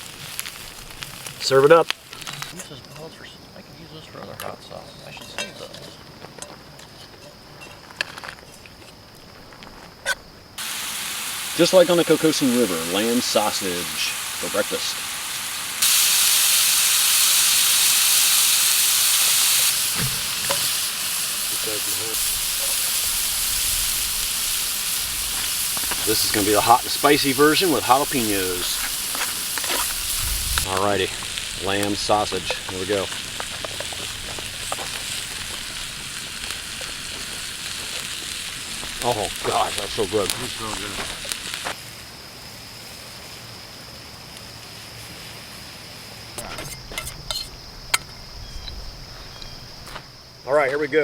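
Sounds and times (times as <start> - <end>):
food sizzling in a hot pan: 0.0 - 2.6, 10.6 - 46.3.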